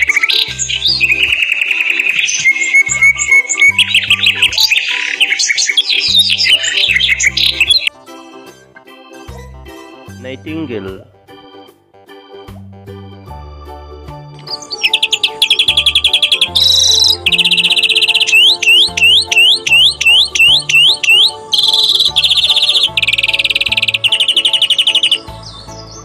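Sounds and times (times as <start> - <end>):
songbird singing trills and whistles: 0.0 - 7.9, 14.4 - 26.0
quiet background music: 0.0 - 26.0.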